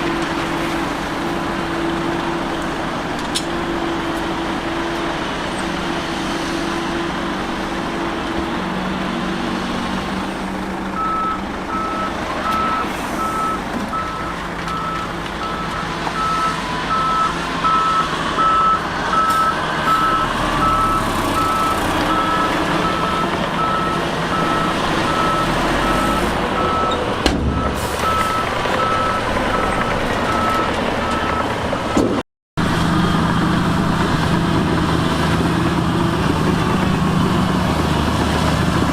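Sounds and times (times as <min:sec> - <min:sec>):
diesel engine running: 0:00.0 - 0:38.9
reversing alarm beeping: 0:11.0 - 0:32.1.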